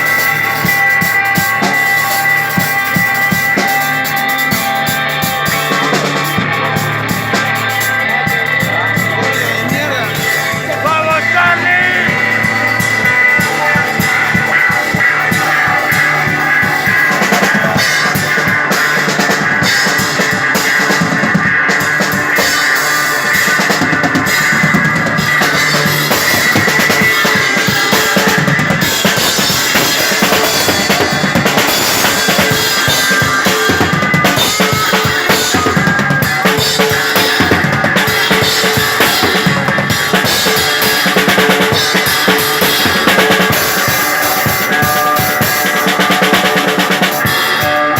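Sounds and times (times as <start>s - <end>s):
drum kit playing rock: 0.0s - 47.9s
electric guitar notes: 0.0s - 47.9s.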